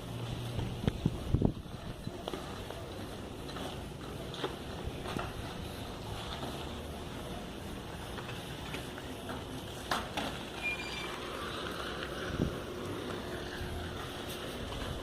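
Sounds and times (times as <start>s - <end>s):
bicycle road noise: 0.0s - 15.0s
wind on microphone: 0.6s - 2.1s.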